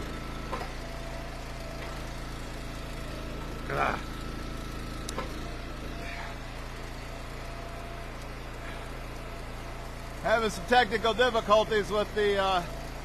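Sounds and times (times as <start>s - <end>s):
small gas engine idling: 0.0s - 13.0s.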